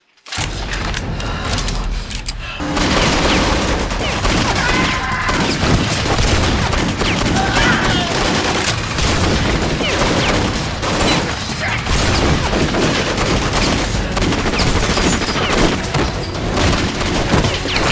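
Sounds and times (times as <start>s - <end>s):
rapid gunfire: 0.3s - 17.9s
voices shouting: 3.2s - 6.2s, 7.0s - 8.7s.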